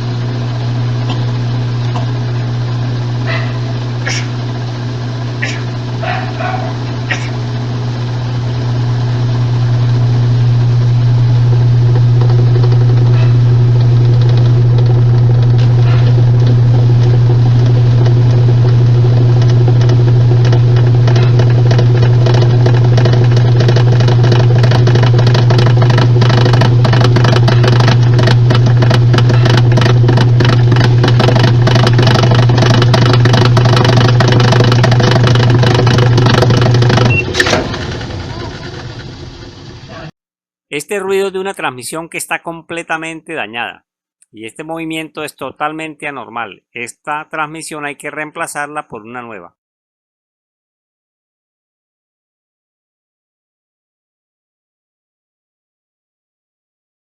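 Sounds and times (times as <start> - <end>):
washing machine humming: 0.0 - 40.1
washing machine rattling: 5.4 - 7.3, 12.0 - 39.9.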